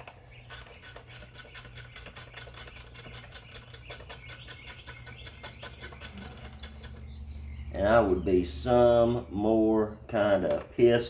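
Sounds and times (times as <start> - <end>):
hand ratchet clicking: 0.0 - 7.0.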